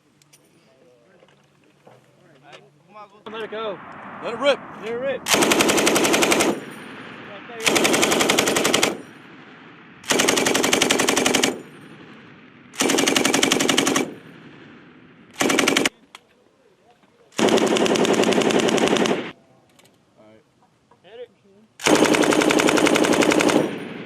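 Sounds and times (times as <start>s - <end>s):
gunshot echoes: 3.3s - 7.8s
machine gun automatic fire: 5.3s - 9.2s, 10.0s - 12.1s, 12.8s - 14.3s, 15.4s - 16.0s, 17.4s - 19.4s, 21.8s - 24.0s.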